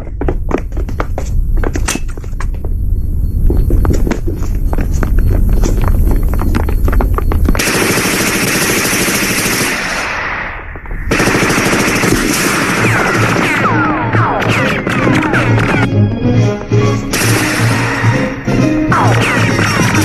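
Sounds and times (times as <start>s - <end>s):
heavy low rumble: 0.0s - 7.6s
dense continuous noise: 0.0s - 14.0s
machine-gun fire: 7.6s - 10.2s, 11.1s - 15.8s.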